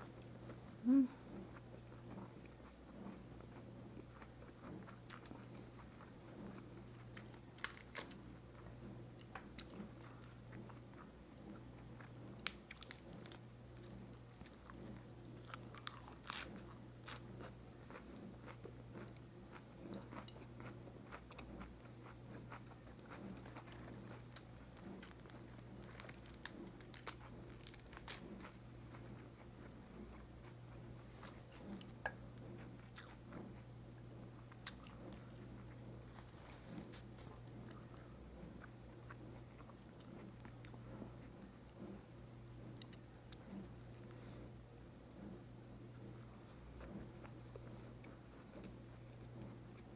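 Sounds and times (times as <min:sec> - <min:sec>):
close chewing with crunches: 0:00.0 - 0:49.9
low steady hum: 0:00.0 - 0:49.9.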